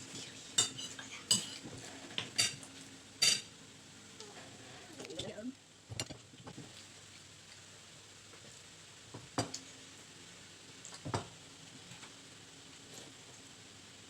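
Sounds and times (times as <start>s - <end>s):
dishes clinking: 0.6s - 1.6s.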